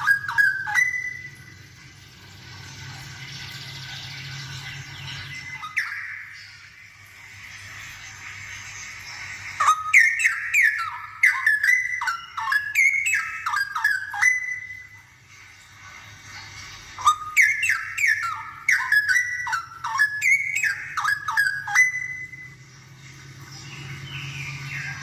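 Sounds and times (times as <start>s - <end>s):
bird singing whistled notes: 0.0s - 1.6s, 3.7s - 6.8s, 9.6s - 15.1s, 17.0s - 22.7s.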